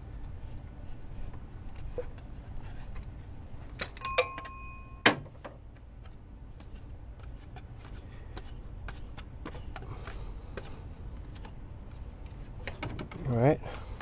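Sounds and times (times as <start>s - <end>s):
metal hand tools clinking: 3.8s - 5.0s.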